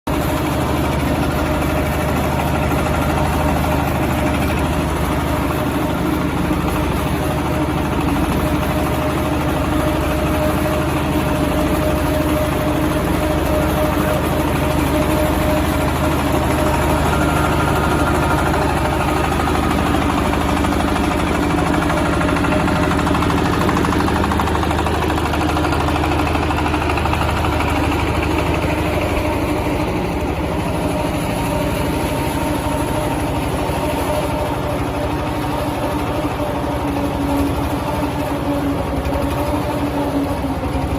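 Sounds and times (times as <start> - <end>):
diesel engine running steadily: 0.0 - 40.9.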